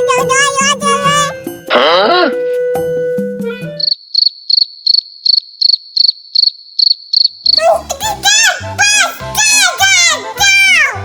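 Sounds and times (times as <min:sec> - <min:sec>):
music with whistle-like slides: 0:01.7 - 0:03.9
cartoon cricket chirping: 0:03.7 - 0:07.7.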